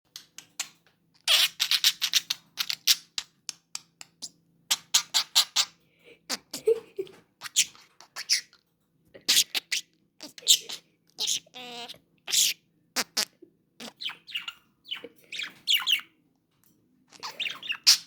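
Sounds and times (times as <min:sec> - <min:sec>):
budgerigar chattering: 0:09.3 - 0:16.0.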